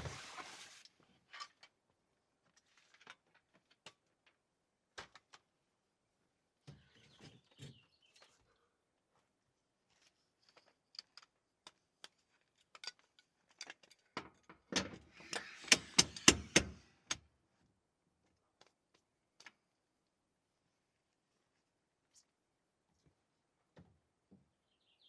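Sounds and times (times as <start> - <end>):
rustle: 0.0 - 1.5.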